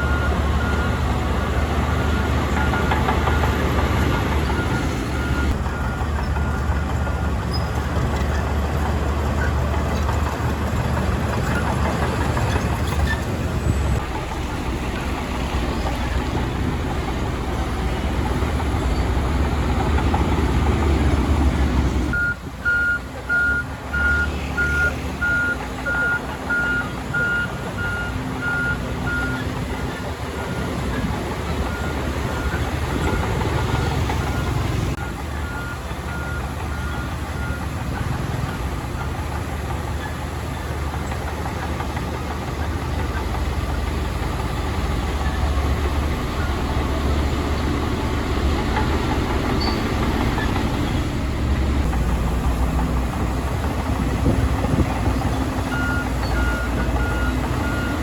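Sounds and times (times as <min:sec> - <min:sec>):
diesel machinery rumbling: 0:00.0 - 0:58.0
reverse alarm beeping: 0:22.2 - 0:29.3.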